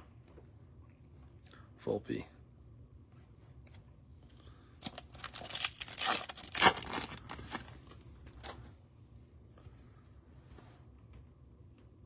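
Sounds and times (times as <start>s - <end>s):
wrapper tearing and crinkling: 4.8s - 8.6s.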